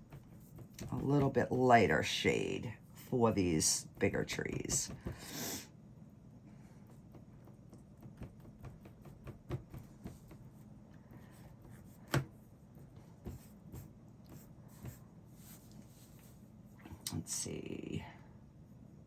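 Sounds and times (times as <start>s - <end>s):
paintbrush taps and scrapes: 0.0s - 1.6s, 6.8s - 16.4s.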